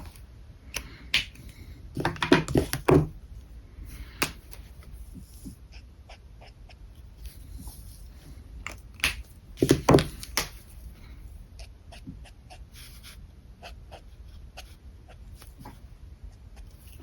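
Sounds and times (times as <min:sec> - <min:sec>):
markers clicking and scratching on paper: 0:00.8 - 0:03.1.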